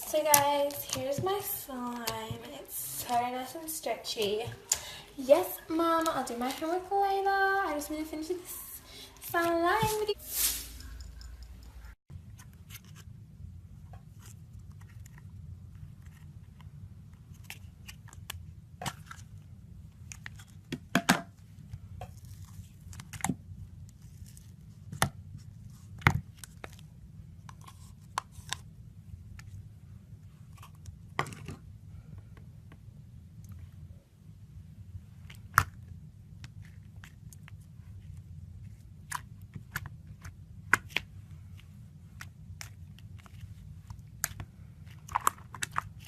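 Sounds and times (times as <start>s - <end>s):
low steady hum: 0.0s - 46.0s.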